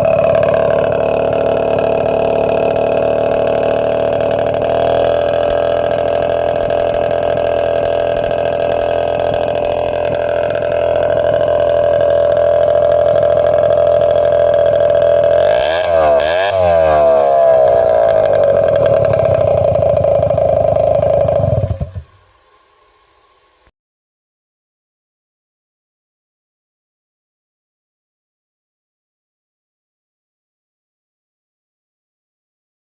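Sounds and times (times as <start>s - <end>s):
scooter engine idling and revving: 0.0s - 22.3s.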